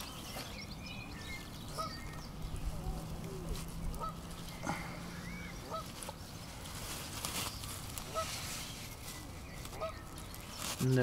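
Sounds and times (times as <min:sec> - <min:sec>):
faint bird calls: 0:00.0 - 0:10.8
rustling and ticking of net: 0:05.6 - 0:11.0.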